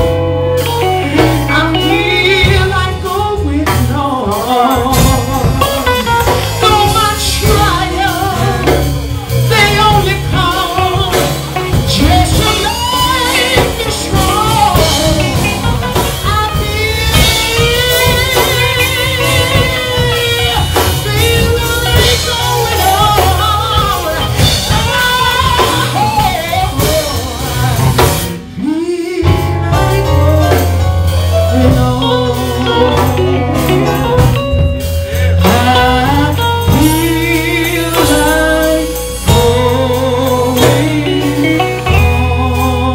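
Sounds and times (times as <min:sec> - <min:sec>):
gospel band music: 0:00.0 - 0:42.9
person singing: 0:00.0 - 0:42.9.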